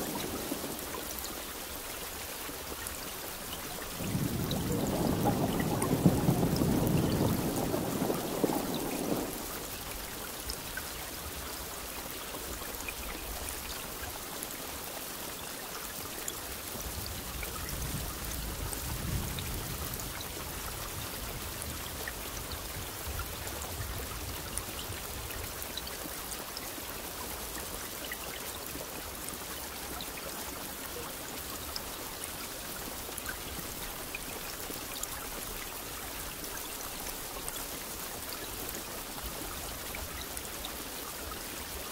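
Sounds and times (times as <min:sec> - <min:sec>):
steady rain falling: 0:00.0 - 0:41.9
thunder rumbling: 0:03.9 - 0:09.8.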